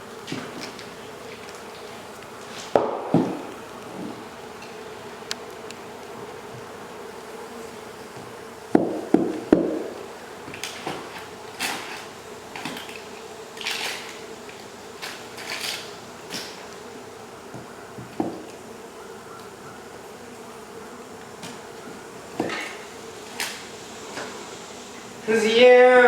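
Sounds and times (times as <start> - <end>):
bee colony buzzing: 0.0 - 26.0
sharp knocks: 8.7 - 9.9.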